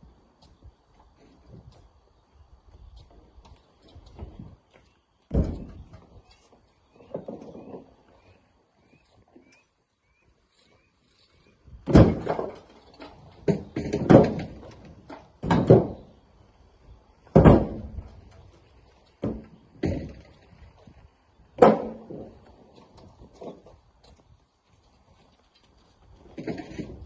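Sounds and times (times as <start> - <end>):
rocks thudding into steel truck bed: 5.3 - 6.1, 11.8 - 16.2, 17.2 - 18.4, 19.2 - 20.8, 21.5 - 23.7, 26.2 - 27.0.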